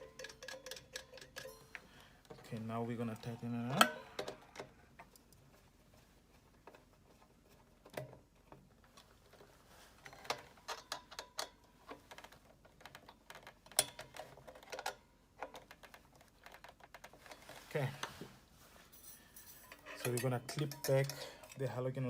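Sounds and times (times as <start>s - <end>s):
screwdriver clicking and tapping: 0.1s - 1.5s.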